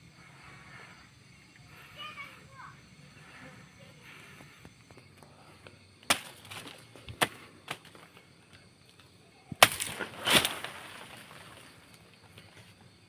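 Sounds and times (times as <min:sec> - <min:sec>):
sharp chopping strikes: 0:06.1 - 0:07.4, 0:09.6 - 0:10.9.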